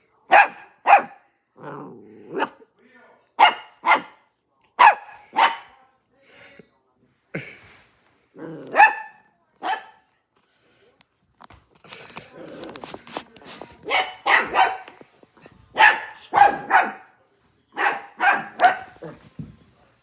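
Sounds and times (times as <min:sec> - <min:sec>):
dog barking: 0:00.3 - 0:01.3, 0:02.3 - 0:02.6, 0:03.4 - 0:04.2, 0:04.8 - 0:05.8, 0:08.6 - 0:10.0, 0:13.8 - 0:15.0, 0:15.7 - 0:19.2
rustling: 0:11.6 - 0:15.5.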